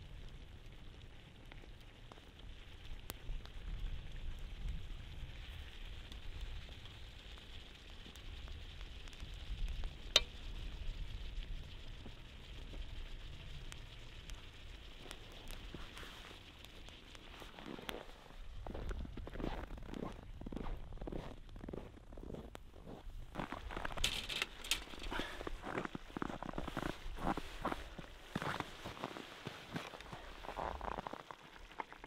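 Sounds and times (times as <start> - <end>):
food sizzling in hot oil: 2.1 - 19.8.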